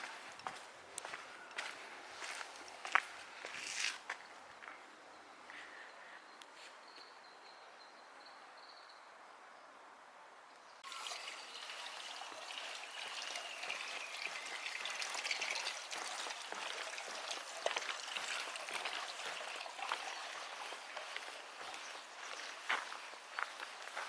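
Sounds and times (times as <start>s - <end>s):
water trickling and splashing: 10.8s - 24.0s.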